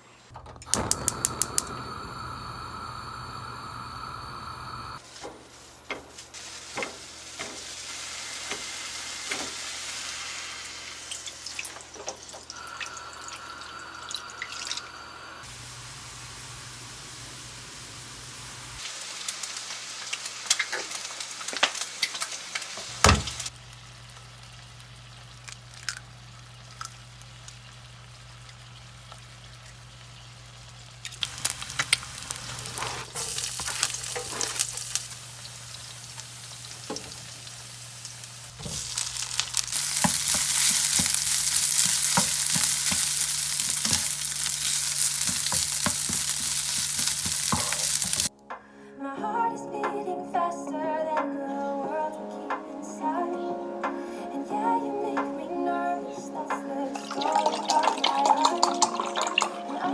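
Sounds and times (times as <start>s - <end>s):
food sizzling in a pan: 0.7s - 48.3s
utensils clicking and clinking: 38.6s - 48.3s.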